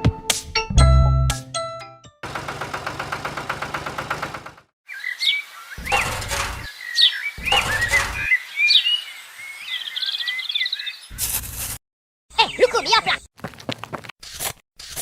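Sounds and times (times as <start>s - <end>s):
small birds chirping: 4.9s - 11.2s, 12.3s - 13.3s.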